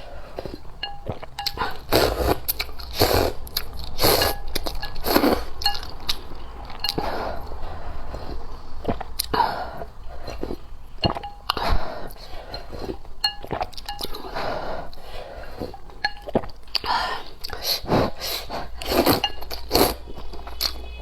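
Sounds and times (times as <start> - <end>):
slurping noodle soup: 0.0 - 21.0
utensils clinking: 0.4 - 7.5, 15.9 - 16.5, 18.8 - 21.0.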